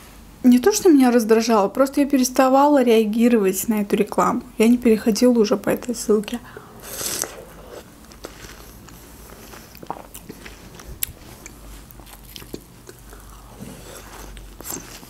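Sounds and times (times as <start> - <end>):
person chewing watermelon: 6.8 - 15.0.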